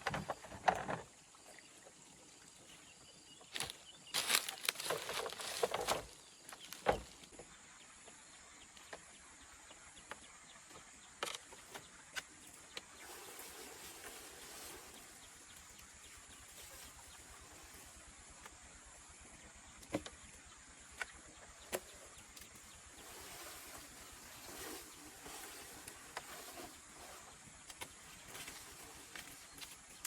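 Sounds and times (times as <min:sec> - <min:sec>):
faint outdoor background: 0:00.0 - 0:30.0
soft rustling: 0:03.6 - 0:07.2.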